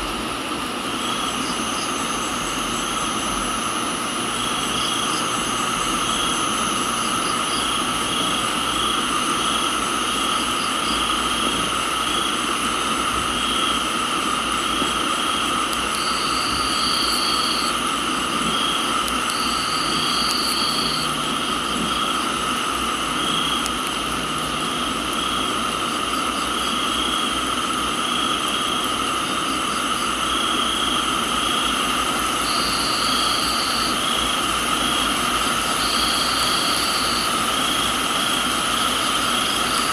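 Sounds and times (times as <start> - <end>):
insects droning shrilly: 0.0 - 39.9
rain hissing: 0.0 - 39.9
pulsing insect chirping: 0.8 - 39.9
short high insect trill: 15.0 - 17.9, 18.5 - 23.7, 32.4 - 34.9, 35.5 - 39.9.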